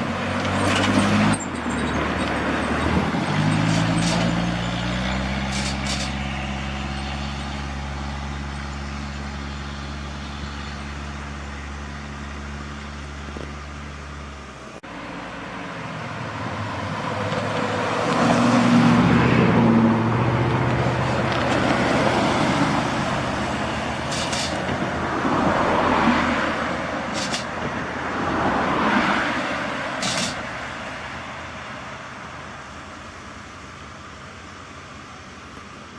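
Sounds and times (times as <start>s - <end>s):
trucks driving past: 0.0s - 35.9s.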